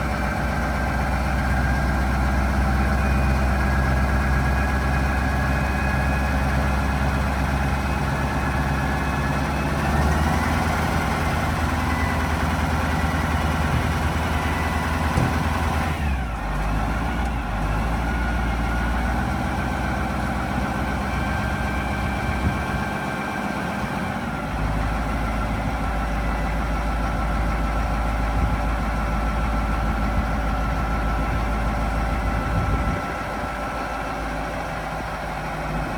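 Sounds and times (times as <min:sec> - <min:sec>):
truck engine idling: 0:00.0 - 0:35.9.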